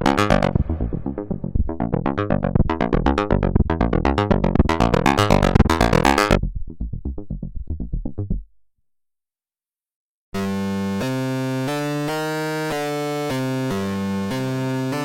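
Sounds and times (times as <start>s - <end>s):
synth sequenced pattern: 0.0s - 8.5s.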